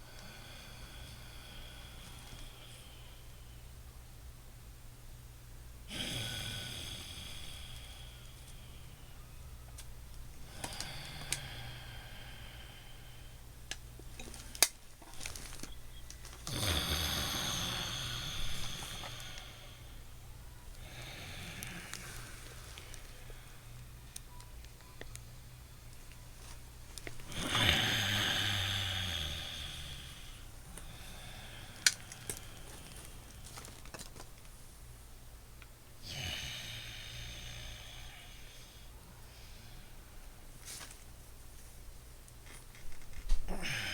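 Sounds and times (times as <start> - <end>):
loud breath through nose: 16.5 - 20.0.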